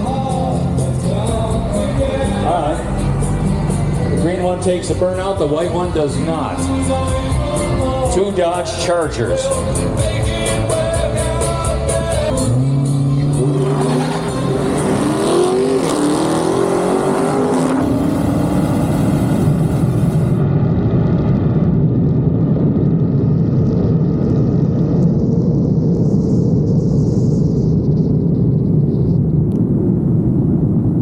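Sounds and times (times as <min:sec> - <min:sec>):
car engine revving hard: 0:12.4 - 0:20.3.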